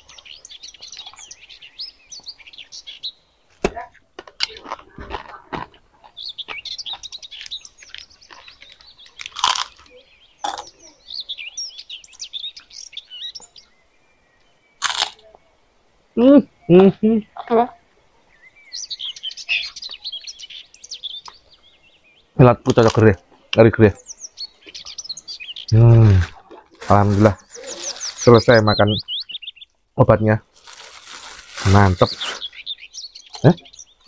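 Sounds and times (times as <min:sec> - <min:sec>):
small birds chirping: 0:00.0 - 0:34.0
sharp crackles: 0:03.5 - 0:10.8, 0:14.8 - 0:15.4, 0:25.7 - 0:29.0, 0:30.4 - 0:32.7.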